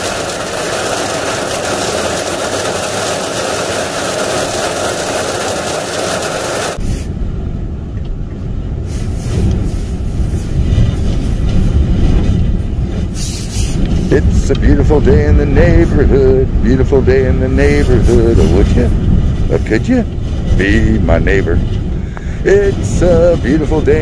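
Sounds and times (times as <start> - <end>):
vehicle engine and road noise: 0.0 - 24.0
deep low rumble: 6.8 - 24.0.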